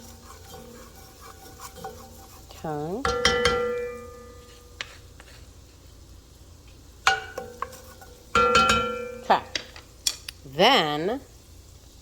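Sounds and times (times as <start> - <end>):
metal striking metal pot ringing: 3.0 - 4.5, 7.1 - 7.7, 8.3 - 9.5.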